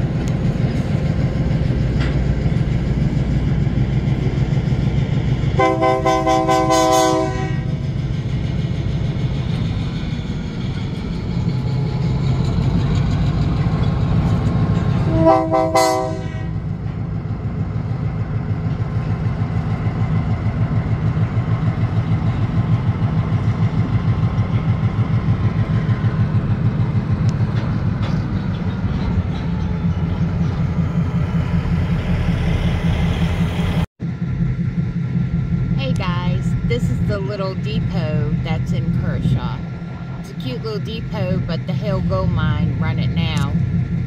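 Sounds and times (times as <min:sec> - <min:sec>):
diesel locomotive engine throbbing: 0:00.0 - 0:44.0
short locomotive horn blast: 0:05.6 - 0:07.8, 0:15.1 - 0:16.6.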